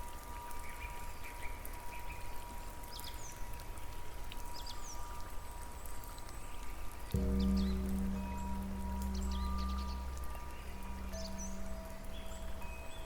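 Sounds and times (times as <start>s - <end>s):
flowing water or rain: 0.0s - 13.0s
low musical drone: 7.2s - 13.0s.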